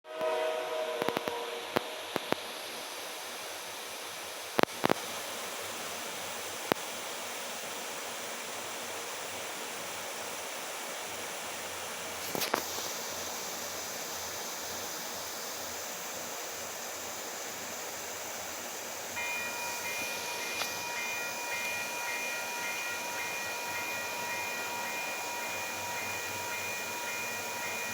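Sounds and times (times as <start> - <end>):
freight train rolling: 11.7 - 27.9
ringing chime: 19.2 - 27.9
train cars clanking: 19.2 - 27.9.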